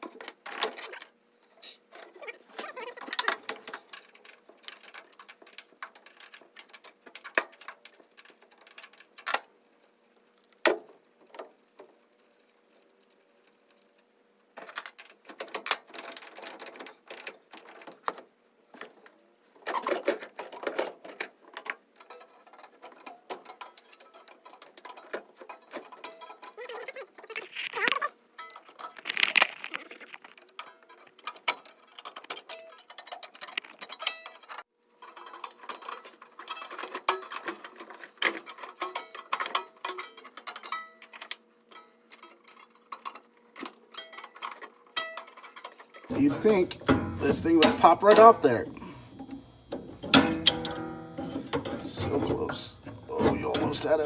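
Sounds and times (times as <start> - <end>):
hand tools clicking on metal: 46.1 - 54.0.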